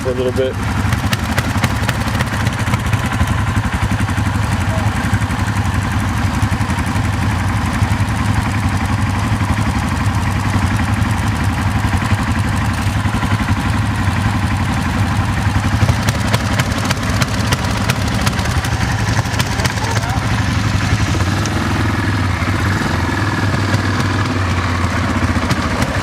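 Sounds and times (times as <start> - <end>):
quad bike engine running: 0.0 - 26.0
sharp rattling knocks: 0.7 - 3.5, 15.5 - 19.8, 23.1 - 26.0.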